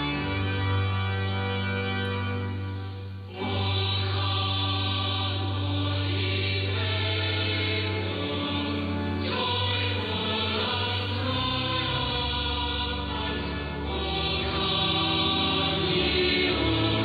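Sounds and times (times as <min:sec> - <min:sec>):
choir singing: 0:00.0 - 0:17.0
organ: 0:00.0 - 0:17.0.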